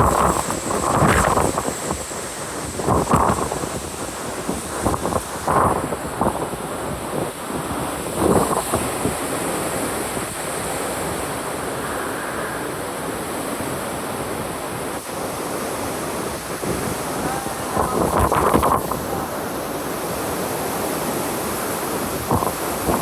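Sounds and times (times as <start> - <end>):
strong wind blowing: 0.0 - 23.0
wind gusts buffeting microphone: 0.0 - 23.0.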